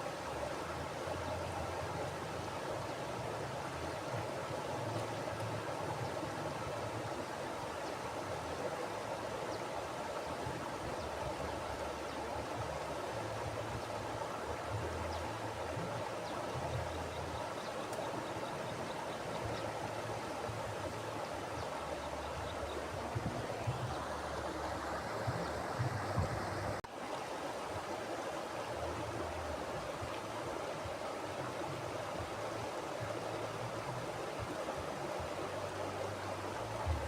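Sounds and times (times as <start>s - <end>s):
river rushing over rocks: 0.0s - 37.0s
low uneven rumble: 19.4s - 26.8s.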